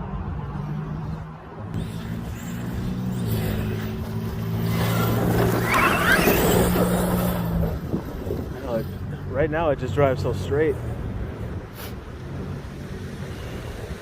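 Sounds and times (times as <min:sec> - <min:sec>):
rc truck motor whining: 0:01.8 - 0:08.4.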